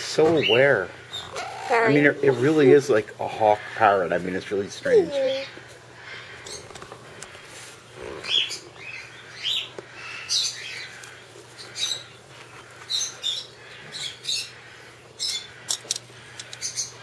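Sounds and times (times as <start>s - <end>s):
parrot chirping calls: 0.4s - 2.5s, 4.8s - 6.7s.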